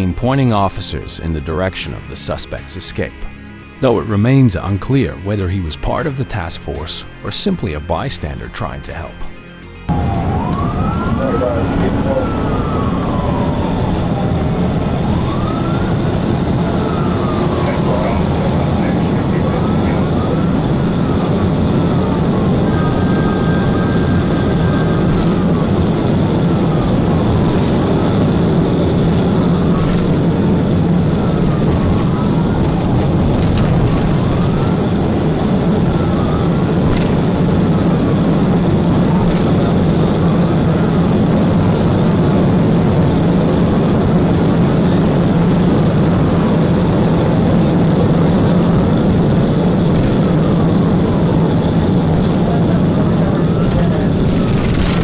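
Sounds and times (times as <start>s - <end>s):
police siren wailing: 0.0s - 55.0s
car engine and road noise: 9.4s - 18.9s, 23.8s - 39.9s.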